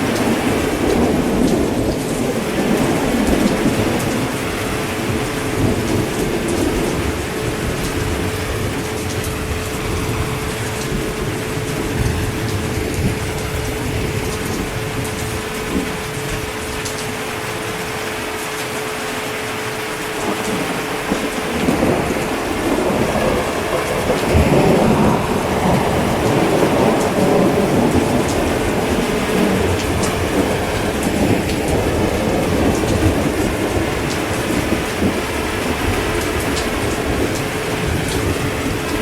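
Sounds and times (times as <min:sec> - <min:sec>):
heavy rain: 0:00.0 - 0:39.0
rolling thunder rumble: 0:00.0 - 0:39.0.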